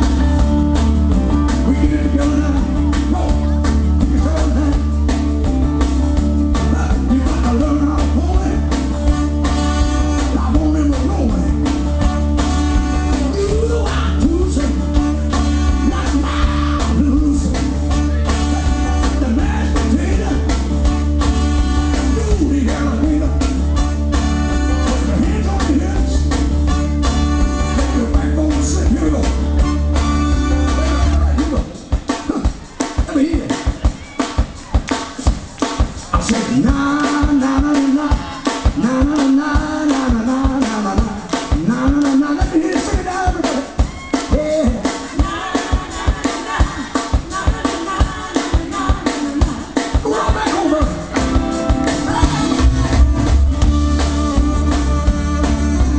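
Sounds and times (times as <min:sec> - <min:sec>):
bass line: 0:00.0 - 0:55.9
drums keeping a steady beat: 0:00.0 - 0:55.9
soul band playing live: 0:00.0 - 0:55.9
person singing: 0:01.5 - 0:05.1, 0:06.5 - 0:08.8, 0:12.7 - 0:23.7, 0:36.1 - 0:55.9.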